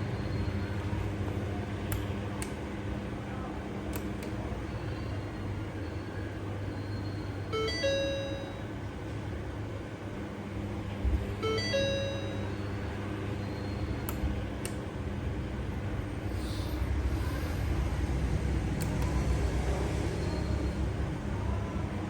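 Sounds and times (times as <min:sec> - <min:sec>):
steady low hum: 0:00.0 - 0:22.0
electronic warning chime: 0:04.7 - 0:08.8, 0:11.4 - 0:14.0.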